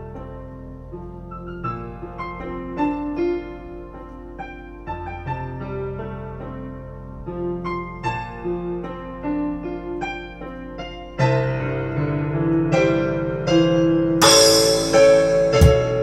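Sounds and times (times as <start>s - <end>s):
electric piano melody: 0.0s - 16.0s
cymbal crash: 14.2s - 16.0s.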